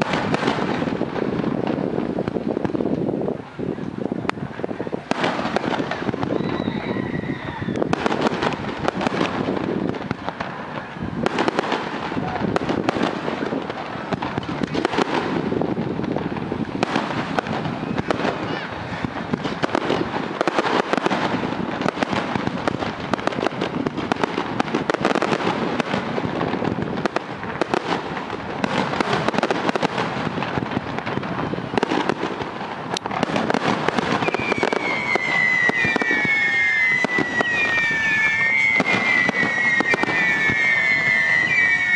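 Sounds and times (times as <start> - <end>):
firework bursts and bangs: 0.0 - 41.9
firework crackling: 0.0 - 41.9
high descending whistles: 34.3 - 41.9.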